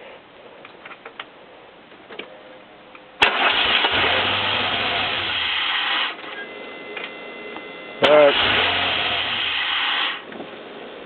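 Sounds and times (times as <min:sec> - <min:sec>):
car engine cranking and starting: 0:03.2 - 0:06.5, 0:08.0 - 0:10.4.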